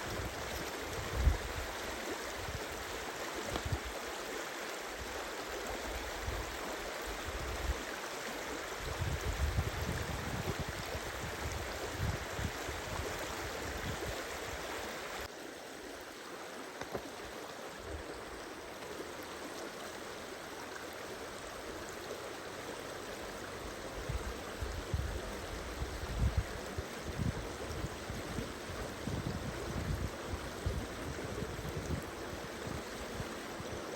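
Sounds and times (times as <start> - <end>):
wind rumble on microphone: 0.0 - 2.8, 8.8 - 14.7, 23.9 - 33.9
stream rushing: 0.0 - 33.9.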